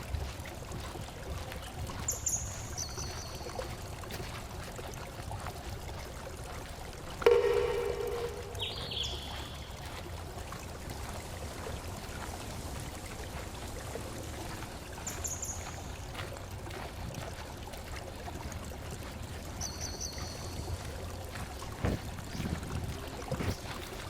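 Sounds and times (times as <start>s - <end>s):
rushing water: 0.0s - 24.0s
bird calling: 7.3s - 9.7s.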